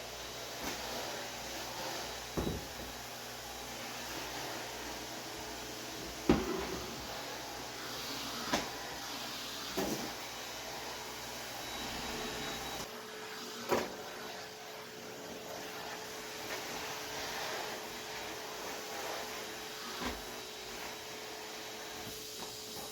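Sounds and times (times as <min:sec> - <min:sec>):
kitchen cleaning knocks and bumps: 0:02.3 - 0:03.0, 0:06.0 - 0:07.0.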